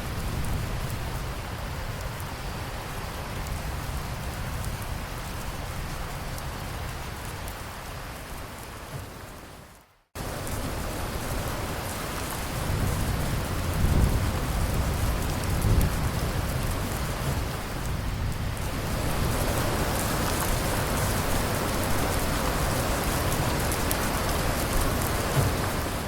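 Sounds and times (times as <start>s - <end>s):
steady rain falling: 0.0s - 26.0s
low thunder rumble: 10.2s - 26.0s.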